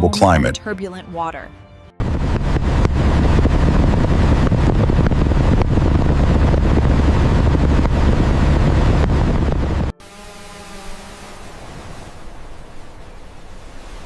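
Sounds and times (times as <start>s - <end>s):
deep low rumble: 2.0s - 9.9s
wind buffeting microphone: 2.0s - 9.9s.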